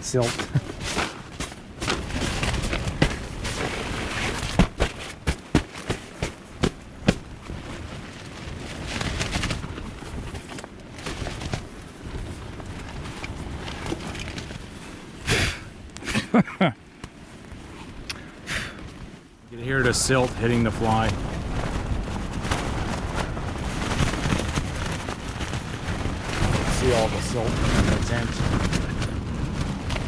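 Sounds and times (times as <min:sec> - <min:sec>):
wind gusting against tent: 0:00.0 - 0:30.0
tent fabric snapping: 0:00.2 - 0:14.7.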